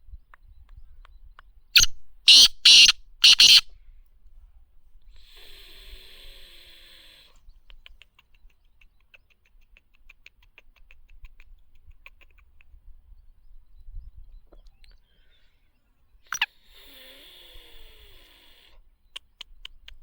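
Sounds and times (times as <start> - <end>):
francolin harsh rasping call: 1.8 - 3.7.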